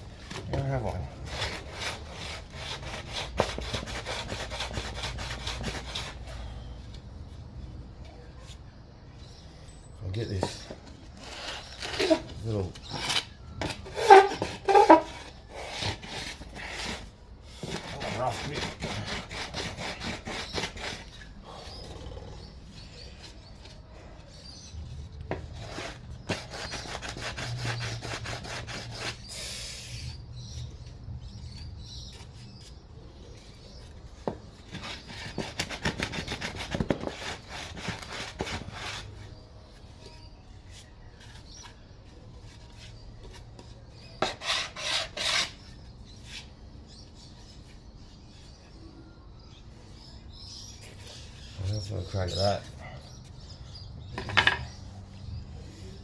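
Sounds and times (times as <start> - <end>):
wood being rubbed smooth: 0.8 - 6.6, 13.8 - 21.6, 25.6 - 30.2, 34.7 - 39.3, 44.2 - 45.6.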